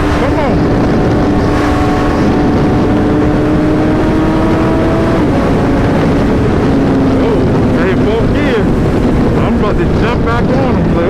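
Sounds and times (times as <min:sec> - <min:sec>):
motorcycle engine: 0:00.0 - 0:11.0
wind rushing past microphone: 0:00.0 - 0:11.0.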